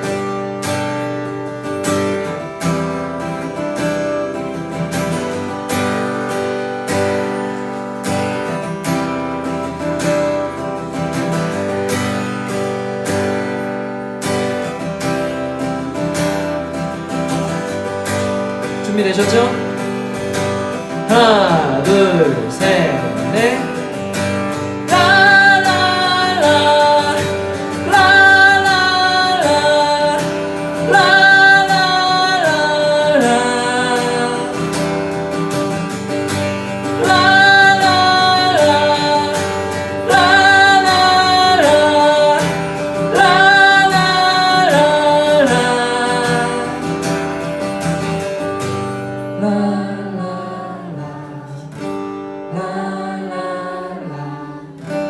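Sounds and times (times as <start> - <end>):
strummed acoustic guitar: 0.0 - 55.0
person singing wordless melody: 18.8 - 19.8, 20.9 - 24.0, 24.8 - 34.9, 36.8 - 47.0, 49.3 - 55.0.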